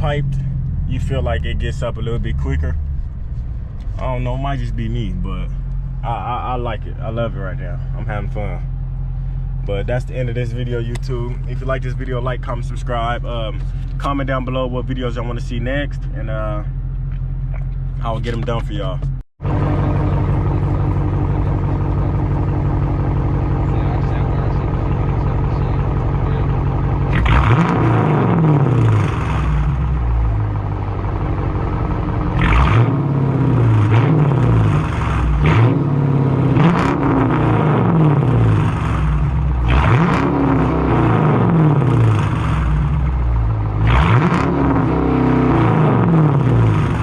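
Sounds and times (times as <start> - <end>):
loud car engine revving: 0.0 - 3.0, 19.4 - 47.0.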